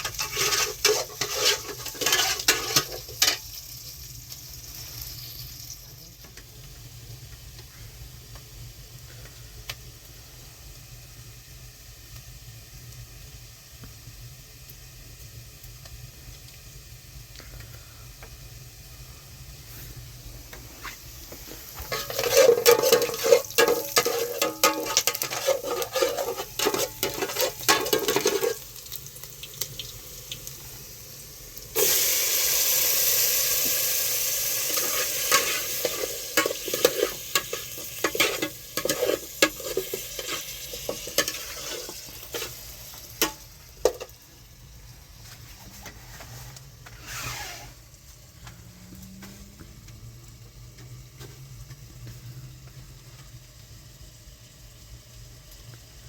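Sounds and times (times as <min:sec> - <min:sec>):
utensil stirring in pan: 0:00.0 - 0:05.8, 0:19.6 - 0:44.2
food frying in a pan: 0:00.0 - 0:56.0
loud sizzle: 0:00.0 - 0:56.0.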